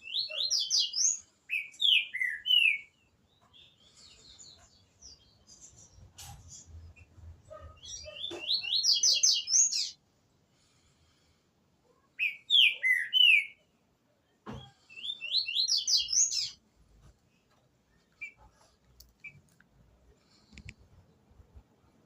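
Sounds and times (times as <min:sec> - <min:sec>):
bird singing slurred notes: 0:07.8 - 0:10.0.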